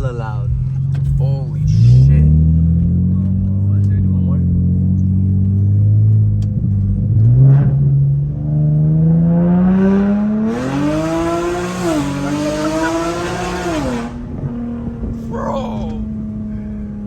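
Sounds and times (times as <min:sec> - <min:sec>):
car engine revving hard: 0:07.0 - 0:17.0.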